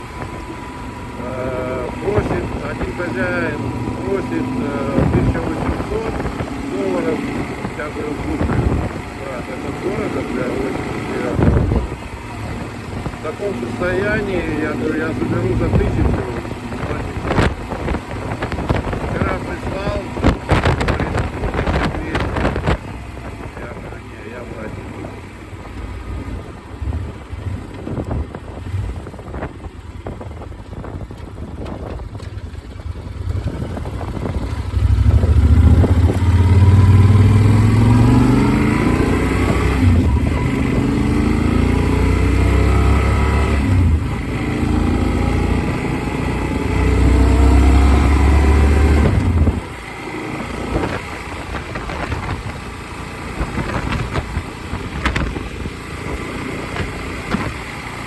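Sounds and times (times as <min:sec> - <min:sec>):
motorcycle engine revving: 0:00.0 - 0:58.0
wind rumble on microphone: 0:00.0 - 0:58.0.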